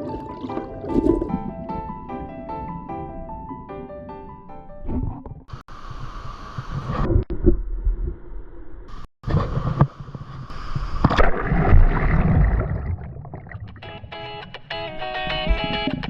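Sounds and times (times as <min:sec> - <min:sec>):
water sloshing and gurgling: 0:00.0 - 0:05.6, 0:09.2 - 0:13.8.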